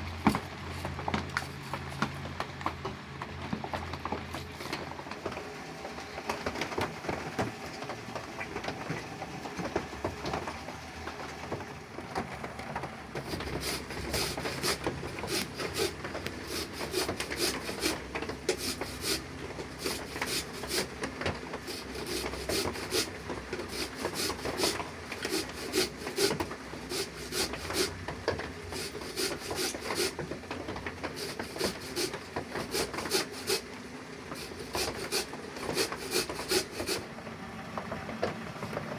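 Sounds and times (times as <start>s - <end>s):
rubbing or scraping strokes: 13.2s - 28.0s, 28.6s - 30.4s, 31.0s - 37.1s.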